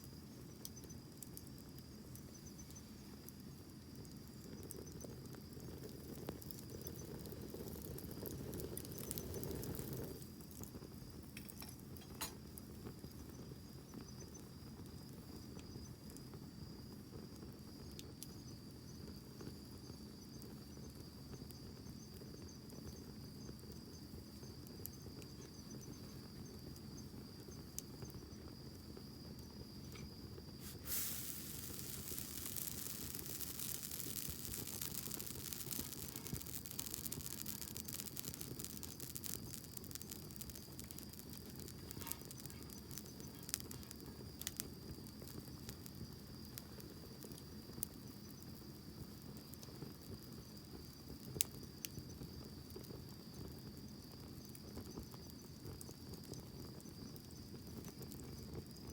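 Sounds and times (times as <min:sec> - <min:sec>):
campfire crackling and popping: 0:00.0 - 0:58.9
insect trill: 0:00.0 - 0:58.9
broad hiss: 0:30.0 - 0:44.6.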